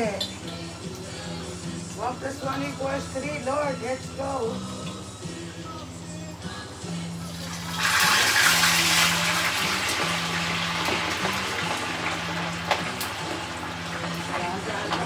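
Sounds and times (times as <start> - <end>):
meat sizzling in hot oil: 7.2 - 15.0
oil popping: 7.4 - 15.0.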